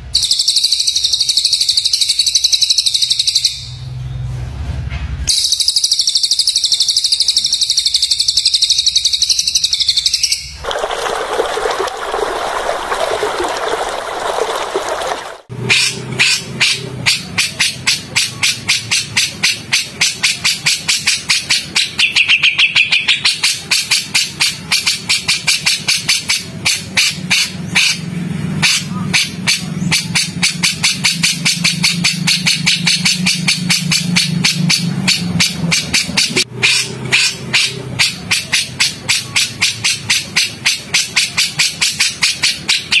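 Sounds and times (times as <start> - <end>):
songbird trill: 0.1 - 3.8.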